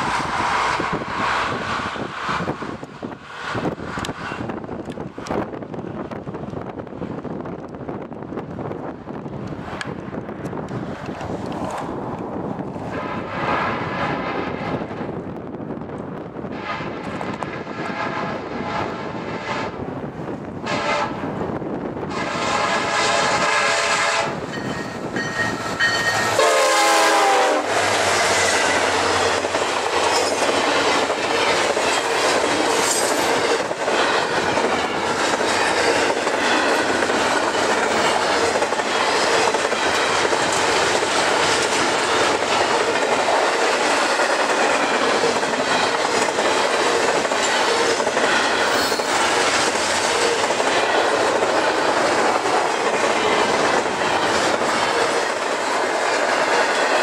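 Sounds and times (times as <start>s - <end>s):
rail clicks: 0.0s - 18.6s, 19.7s - 57.0s
train wheels rumbling: 0.0s - 57.0s
locomotive air horn: 16.4s - 17.0s, 17.6s - 19.8s, 20.6s - 21.2s, 22.1s - 24.4s, 26.2s - 29.1s.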